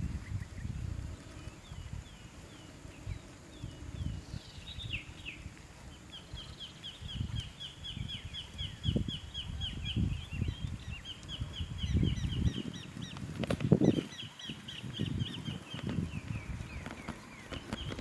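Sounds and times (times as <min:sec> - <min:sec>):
bird chirping: 0:06.1 - 0:13.2, 0:13.8 - 0:18.0.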